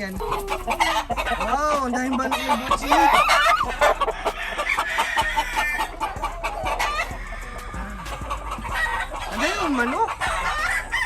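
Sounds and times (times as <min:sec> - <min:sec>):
chickens clucking: 0:00.0 - 0:11.0
rooster crowing: 0:02.2 - 0:11.0.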